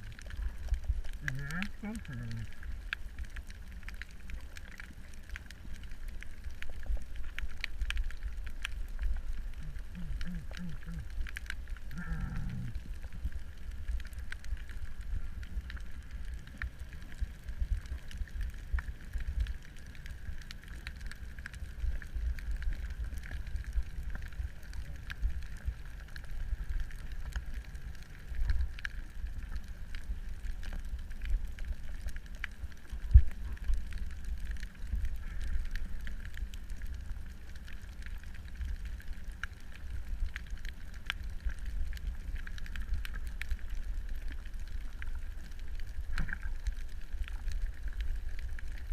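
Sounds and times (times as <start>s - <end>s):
faint reef crackle clicks: 0.0s - 48.9s
underwater rumble of water: 0.0s - 48.9s.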